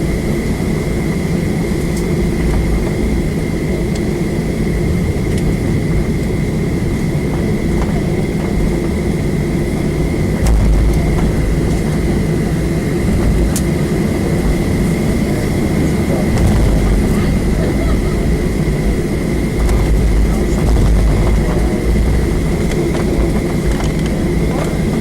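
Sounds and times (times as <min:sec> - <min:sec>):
jet engines idling rumble: 0:00.0 - 0:25.0.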